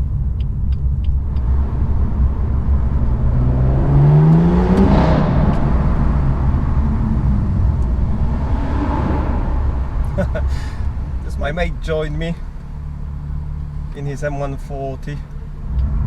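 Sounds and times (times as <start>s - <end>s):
car engine accelerating and rumbling: 0.0s - 16.0s.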